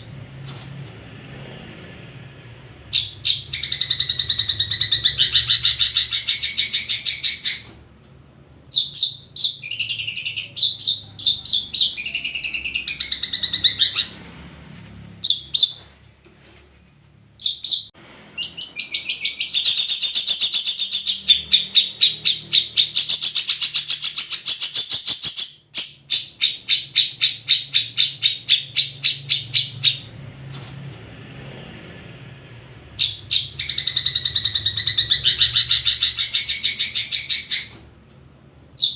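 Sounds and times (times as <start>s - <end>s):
shrikes singing rattling chatter: 2.9s - 7.6s.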